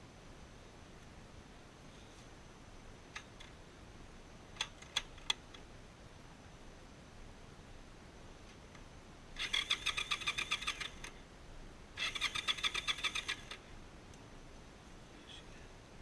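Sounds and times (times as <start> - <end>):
motorcycle starter cranking: 9.4 - 11.1, 12.0 - 13.6.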